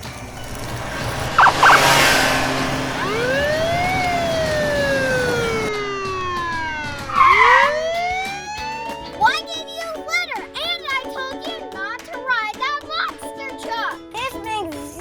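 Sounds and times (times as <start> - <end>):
police siren wailing: 0.4 - 9.4
short siren beeps: 1.4 - 2.1, 2.9 - 9.2.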